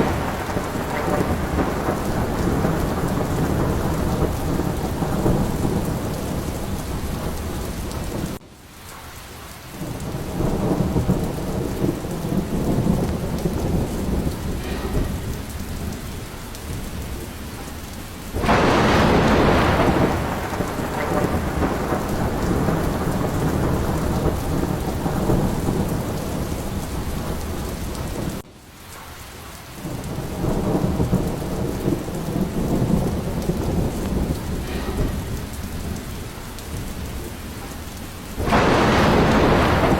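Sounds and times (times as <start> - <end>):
low rumble of thunder: 0.0 - 8.4, 9.7 - 28.5, 29.8 - 39.9
sharp thunderclap: 0.0 - 8.4, 9.8 - 28.4, 29.8 - 39.9
heavy rain hissing: 0.0 - 39.9.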